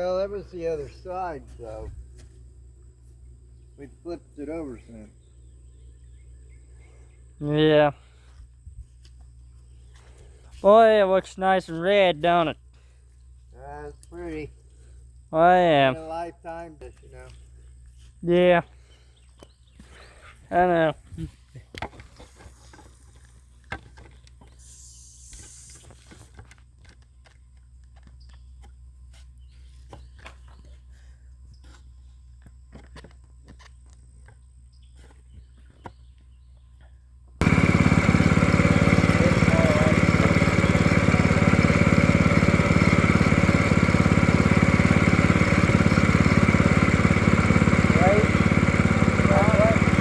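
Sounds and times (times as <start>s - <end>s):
small sawmill engine running: 37.4s - 50.0s.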